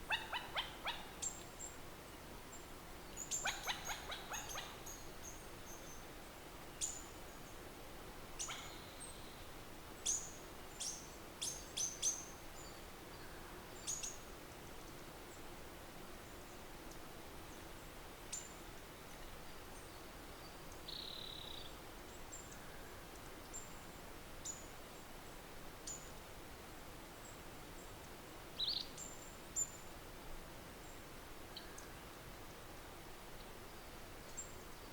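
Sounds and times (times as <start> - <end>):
faint outdoor background noise: 0.0 - 34.9
small birds chirping: 2.5 - 6.1, 28.6 - 29.8.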